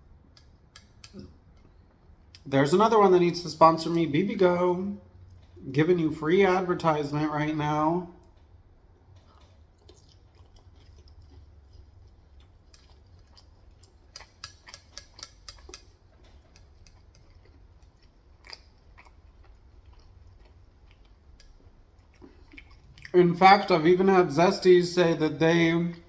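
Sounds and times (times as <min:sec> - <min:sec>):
chewing crunchy fried chicken: 0:05.0 - 0:05.7, 0:08.2 - 0:24.0.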